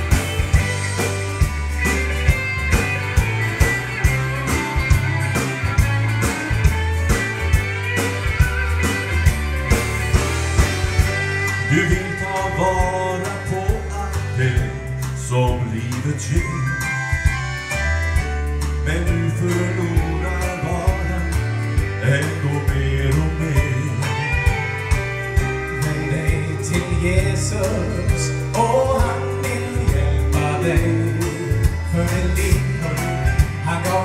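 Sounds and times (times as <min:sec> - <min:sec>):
drum beat: 0:00.0 - 0:15.6
bass: 0:00.0 - 0:34.0
guitar: 0:00.0 - 0:34.0
person singing: 0:11.0 - 0:34.0.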